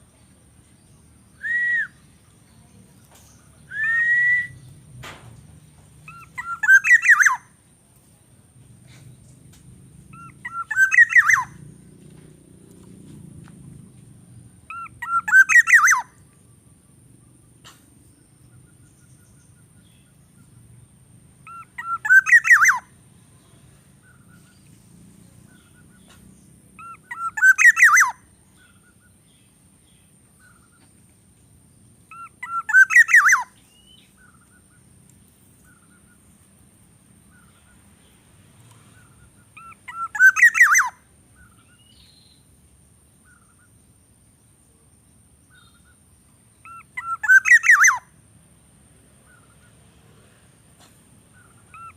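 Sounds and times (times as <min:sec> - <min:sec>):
bird calling: 0:06.0 - 0:07.6, 0:10.1 - 0:11.8, 0:14.6 - 0:16.8, 0:21.4 - 0:24.7, 0:25.4 - 0:31.0, 0:32.1 - 0:35.0, 0:35.6 - 0:36.4, 0:37.2 - 0:42.4, 0:43.2 - 0:43.8, 0:45.4 - 0:48.2, 0:50.8 - 0:51.9.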